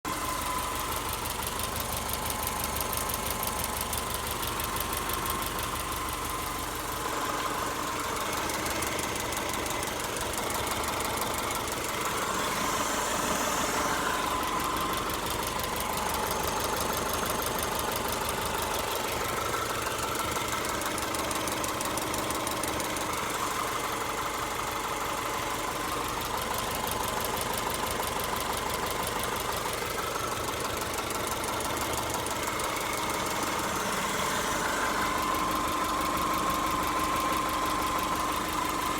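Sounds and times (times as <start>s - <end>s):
car engine idling: 0.0s - 38.9s
fast steady ticking: 0.1s - 38.9s.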